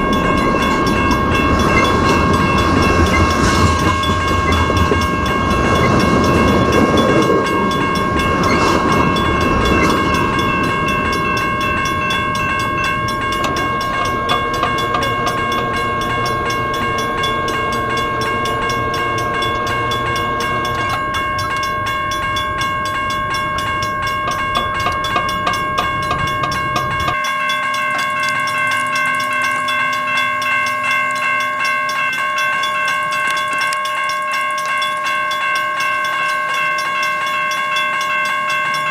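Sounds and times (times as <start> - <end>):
high-pitched squeal: 0.0 - 22.6
wheels clacking over rail joints: 0.0 - 27.2
freight train rumbling: 0.0 - 38.9.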